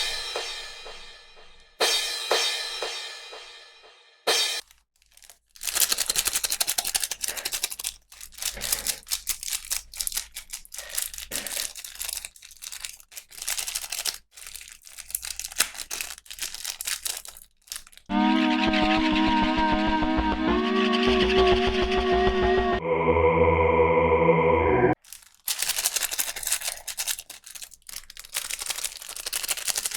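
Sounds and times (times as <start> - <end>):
packaging crinkling and tearing: 4.6 - 18.1, 25.0 - 29.9.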